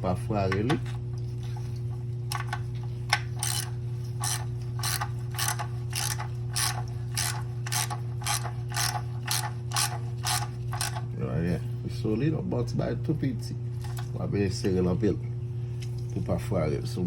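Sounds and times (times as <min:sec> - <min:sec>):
steady low hum: 0:00.0 - 0:17.0
ratchet wrench clicking: 0:03.4 - 0:11.0.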